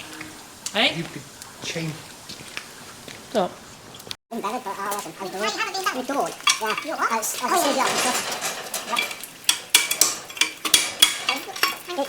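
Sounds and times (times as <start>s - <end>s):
metal objects clinking: 5.4s - 12.0s.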